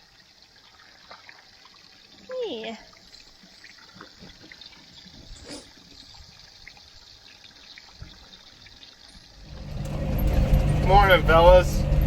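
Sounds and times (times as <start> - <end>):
water trickling into a trough: 0.0 - 11.2.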